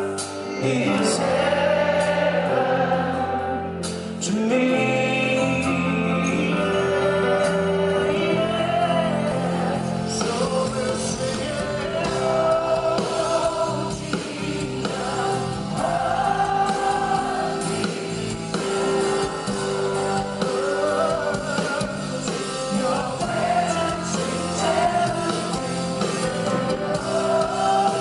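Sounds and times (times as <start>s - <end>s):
keyboard and band accompaniment: 0.0s - 28.0s
choir singing long notes: 0.5s - 3.8s, 12.5s - 28.0s.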